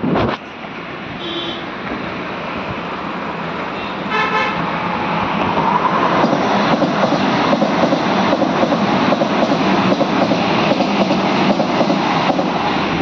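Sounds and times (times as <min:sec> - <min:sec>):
electric train passing: 0:02.0 - 0:13.0
train horn blast: 0:04.1 - 0:04.6.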